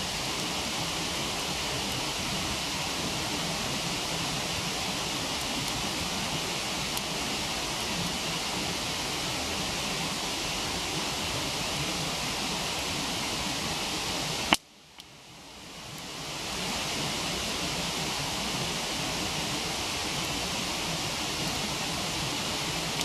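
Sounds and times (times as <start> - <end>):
waterfall rushing: 0.0 - 14.6, 15.6 - 23.0.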